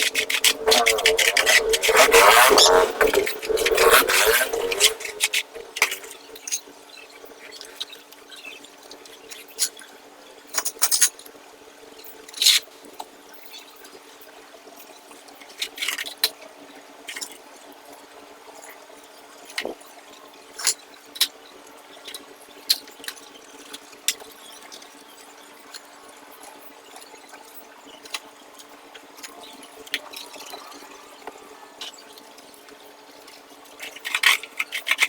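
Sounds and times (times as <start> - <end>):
steady low hum: 0.0 - 6.4.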